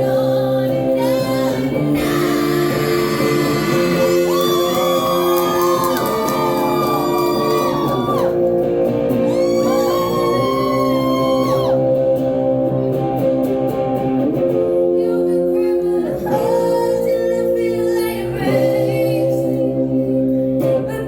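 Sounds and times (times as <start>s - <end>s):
high singing voice: 0.0s - 8.4s, 14.8s - 20.2s
guitar chords: 0.0s - 21.0s.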